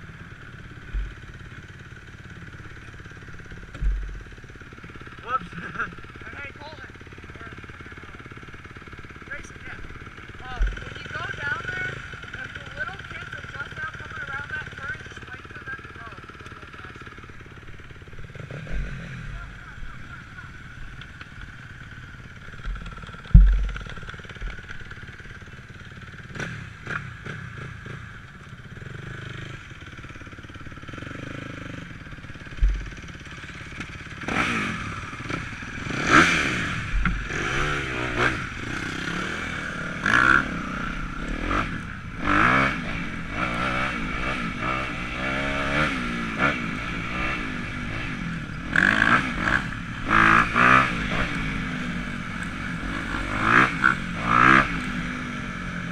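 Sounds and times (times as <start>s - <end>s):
dirt bike engine revving: 0.0s - 55.9s
sharp thumps: 3.6s - 4.4s, 22.6s - 24.8s.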